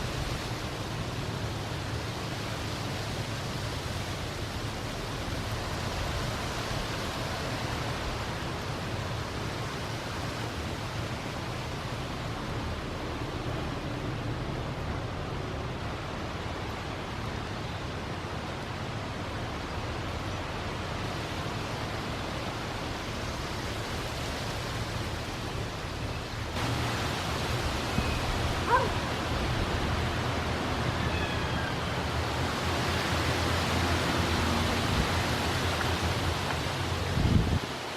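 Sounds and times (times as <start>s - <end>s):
wind on microphone: 32.0s - 37.9s.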